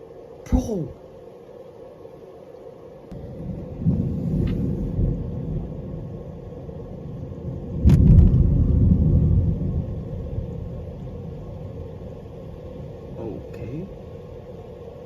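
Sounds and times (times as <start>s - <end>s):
thunder rumbling: 3.1s - 15.0s
sharp thunder crack: 3.3s - 6.2s, 7.5s - 10.8s.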